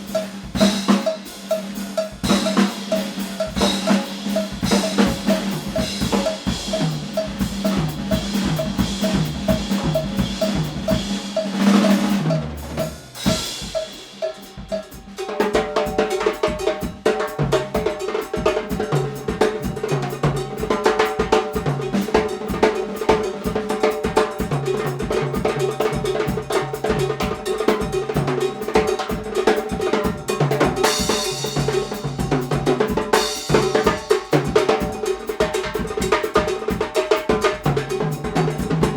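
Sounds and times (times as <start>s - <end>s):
pitched accompaniment: 0.0s - 17.2s, 26.1s - 38.9s
cowbell pattern: 0.0s - 38.9s
drum kit groove: 0.0s - 38.9s.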